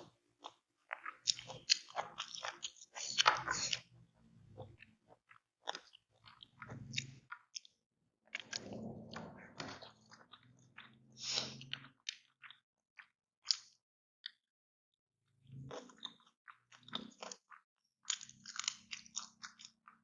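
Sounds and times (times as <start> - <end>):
person chewing crunchy food: 0.0 - 7.7, 8.3 - 13.8, 15.6 - 20.0
wet mouth clicks: 0.4 - 3.9, 11.2 - 12.2.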